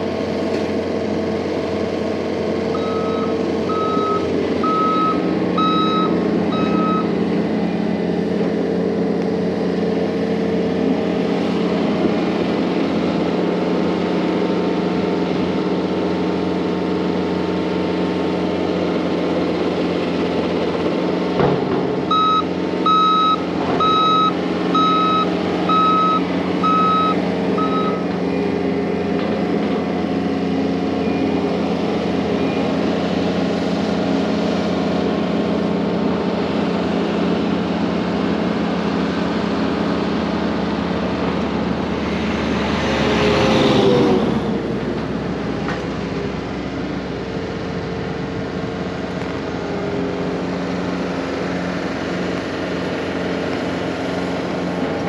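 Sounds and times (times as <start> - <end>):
diesel machine engine running: 0.0 - 55.0
backup alarm beeping: 2.8 - 7.1, 22.1 - 28.1.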